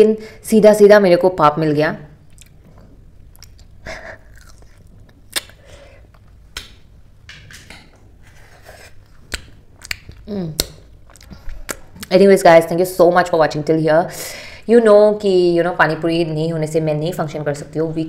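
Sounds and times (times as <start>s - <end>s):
person chewing crunchy food: 2.3s - 6.4s, 8.3s - 10.3s, 11.0s - 12.1s.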